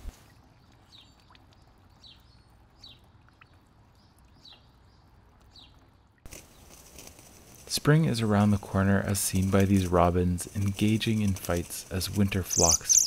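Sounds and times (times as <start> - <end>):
faint forest ambience: 0.0 - 13.0
bird high falling calls: 12.2 - 13.0.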